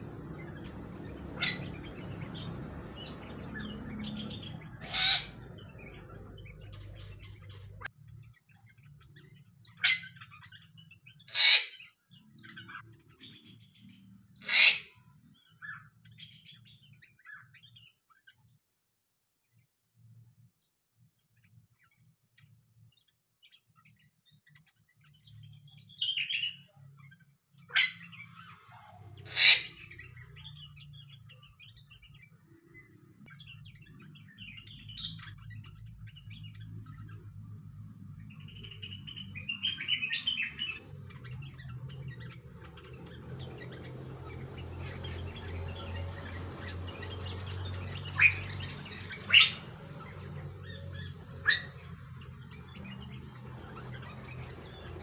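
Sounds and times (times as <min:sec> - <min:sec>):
sharp loud bird notes: 0:00.0 - 0:07.9, 0:09.2 - 0:13.4, 0:14.4 - 0:17.5, 0:27.7 - 0:32.2, 0:38.3 - 0:55.0
small birds chirping: 0:00.0 - 0:55.0.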